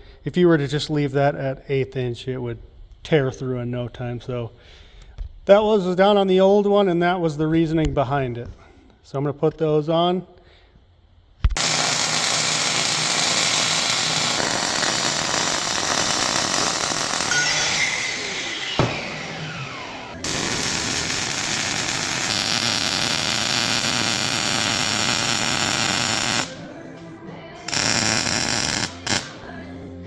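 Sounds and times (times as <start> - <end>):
falling whine: 11.6 - 30.0
power tools grinding metal: 11.6 - 30.0
sharp knock: 18.8 - 19.4.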